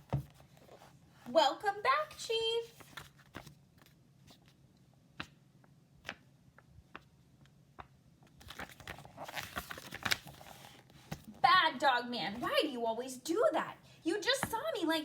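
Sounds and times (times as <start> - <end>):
paper rustling: 2.0 - 4.6, 8.3 - 11.4.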